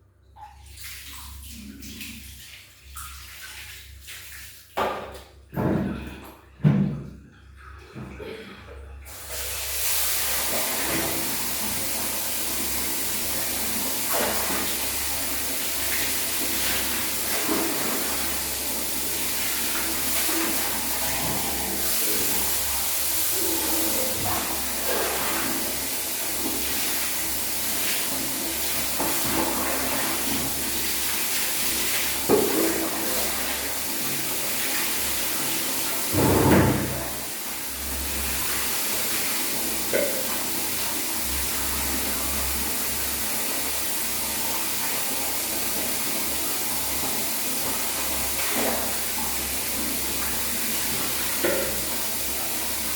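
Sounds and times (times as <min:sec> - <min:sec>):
water running from a tap: 0:00.6 - 0:05.3, 0:09.0 - 0:52.9.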